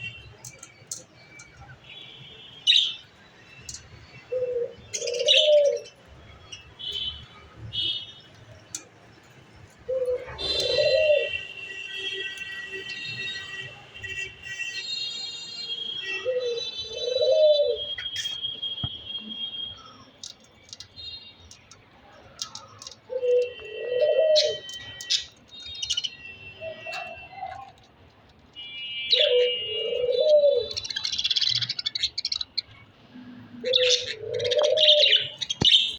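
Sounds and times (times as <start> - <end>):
doves cooing: 4.2 - 6.0, 9.8 - 11.4, 16.3 - 17.9, 23.1 - 24.8, 29.2 - 31.0, 33.4 - 35.7
budgerigars chirping and warbling: 22.4 - 27.8, 29.1 - 32.9, 33.6 - 35.9.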